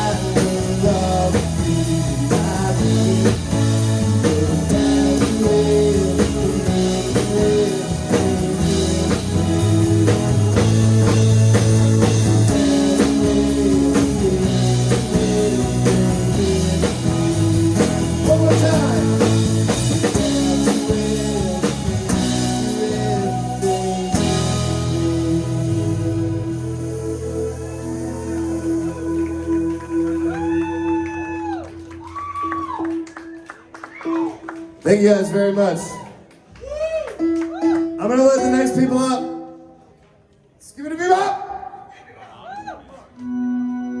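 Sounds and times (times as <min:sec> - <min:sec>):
blues rock band playing: 0:00.0 - 0:34.8.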